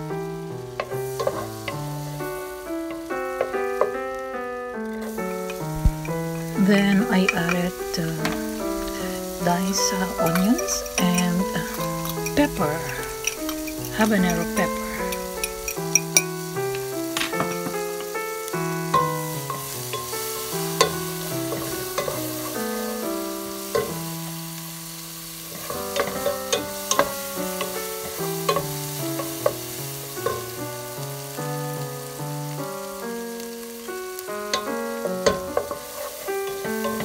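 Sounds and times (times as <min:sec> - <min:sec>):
background music: 0:00.0 - 0:37.0
onions sizzling in a frying pan: 0:00.0 - 0:37.0
wooden spatula scraping a pan: 0:00.7 - 0:02.2, 0:05.0 - 0:24.2, 0:25.4 - 0:30.6, 0:34.5 - 0:37.0.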